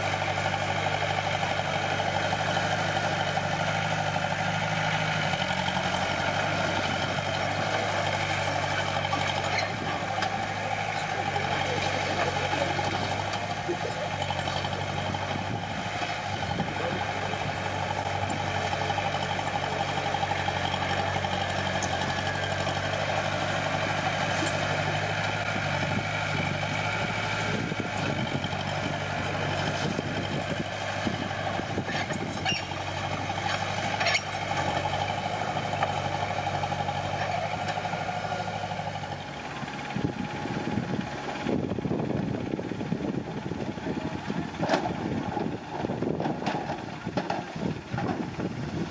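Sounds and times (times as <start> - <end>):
heavy machinery diesel engine: 0.0 - 48.9.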